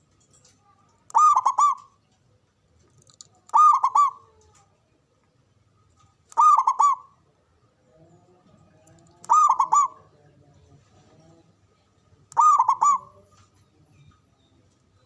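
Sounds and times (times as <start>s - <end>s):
dove cooing: 1.1s - 2.0s, 3.5s - 4.5s, 6.3s - 7.2s, 9.1s - 10.4s, 12.3s - 13.5s.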